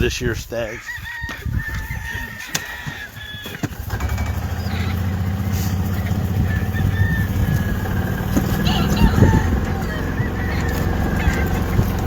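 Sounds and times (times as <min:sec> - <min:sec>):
vehicle engine starting and running: 0:03.6 - 0:12.0.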